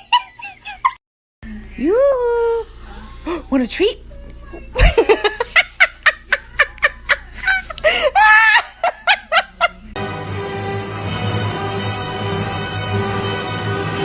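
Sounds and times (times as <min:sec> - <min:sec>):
person laughing hard: 0:04.8 - 0:09.9
music: 0:10.0 - 0:14.0.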